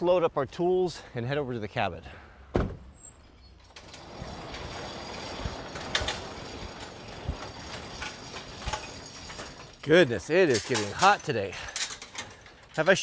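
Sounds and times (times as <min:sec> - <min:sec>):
truck engine and road noise: 0:00.1 - 0:13.0
sharp knocks and rattles: 0:03.7 - 0:13.0.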